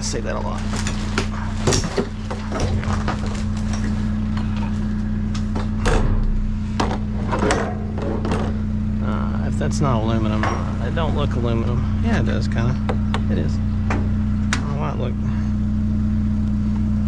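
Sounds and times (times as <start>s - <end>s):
junk rummaged in a dumpster: 0.0s - 8.7s
steady low hum: 0.0s - 17.0s.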